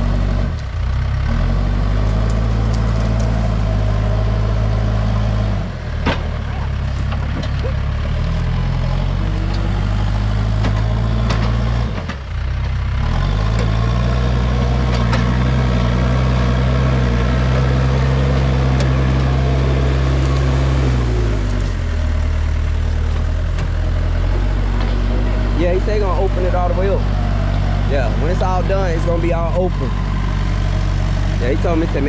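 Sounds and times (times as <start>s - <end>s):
backhoe engine running: 0.0s - 32.0s
sharp knocks and cracks: 2.0s - 3.6s, 6.0s - 6.4s, 10.5s - 12.2s.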